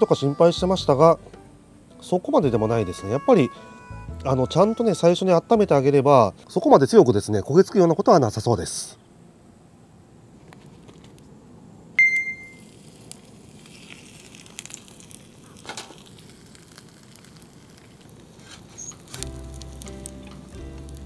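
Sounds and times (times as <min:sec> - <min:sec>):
short bright ding: 0:12.0 - 0:12.6
food sizzling in a frying pan: 0:12.5 - 0:21.0.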